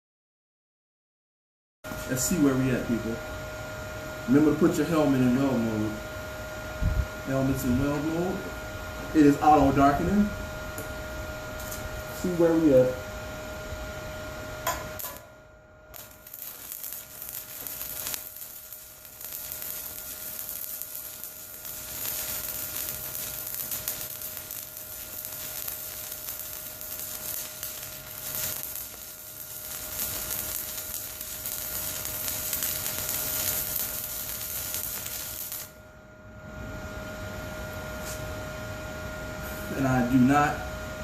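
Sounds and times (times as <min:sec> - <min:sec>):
welding arc crackling sizzle: 0:01.9 - 0:03.2, 0:07.2 - 0:13.1, 0:13.7 - 0:35.9.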